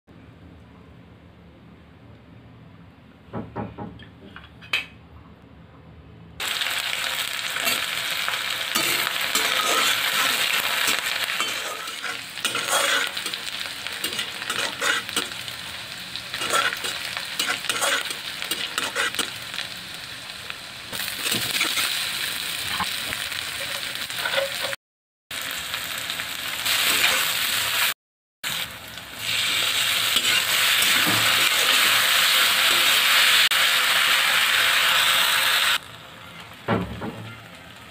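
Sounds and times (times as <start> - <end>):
food sizzling in hot oil: 6.4 - 37.9
metal spatula scraping pan: 8.7 - 15.4, 16.3 - 19.3, 23.6 - 24.8, 29.4 - 33.1.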